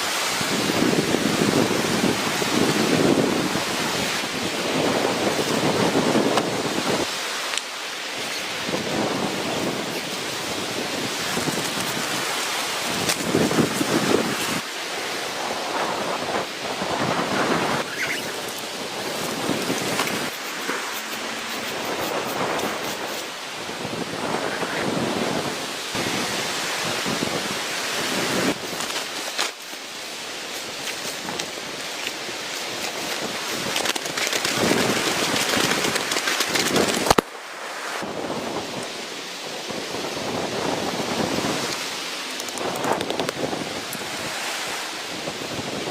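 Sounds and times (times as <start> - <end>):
gusting wind: 0.0 - 45.9
heavy rain: 0.0 - 45.9
heavy rain pattering: 33.1 - 37.2.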